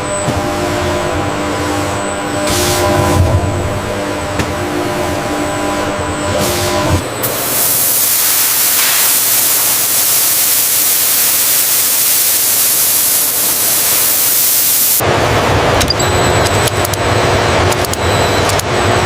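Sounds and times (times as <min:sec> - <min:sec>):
loud steady hiss: 0:07.2 - 0:15.0.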